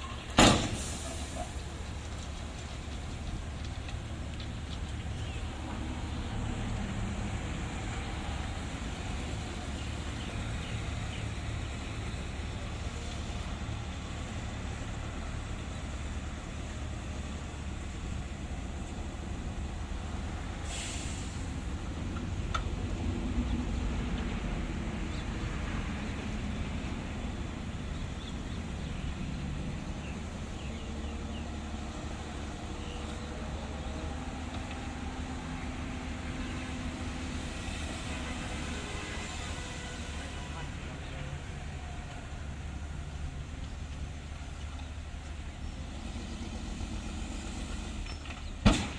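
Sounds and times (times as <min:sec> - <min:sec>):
heavy diesel machinery running: 0:00.0 - 0:48.6
air hiss: 0:20.6 - 0:21.6.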